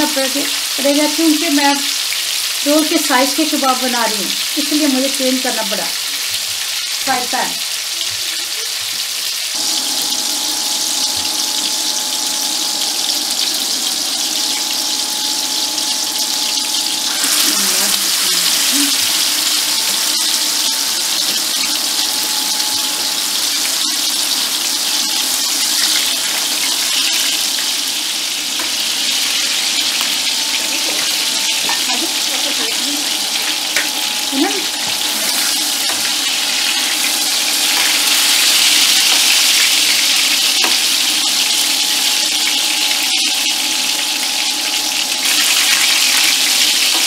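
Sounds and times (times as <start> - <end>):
patties sizzling in frying pan: 0.0 - 47.0
faint hum: 9.6 - 47.0.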